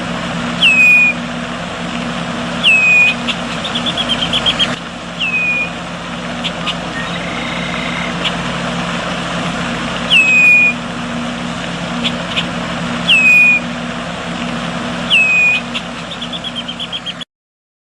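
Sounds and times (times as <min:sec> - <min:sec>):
low hum: 0:00.0 - 0:17.2
bird calling: 0:00.5 - 0:01.3, 0:02.5 - 0:08.7, 0:09.9 - 0:10.9, 0:11.8 - 0:13.8, 0:15.0 - 0:17.2
bird chirps: 0:00.6 - 0:01.2, 0:02.6 - 0:05.8, 0:06.4 - 0:08.4, 0:10.0 - 0:10.8, 0:12.0 - 0:13.7, 0:15.1 - 0:17.2.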